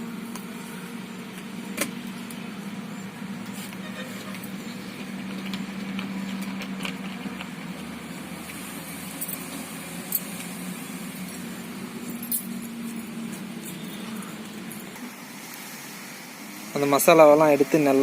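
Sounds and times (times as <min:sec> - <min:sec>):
steady low hum: 0:00.0 - 0:17.3
sharp clinks: 0:12.0 - 0:12.8.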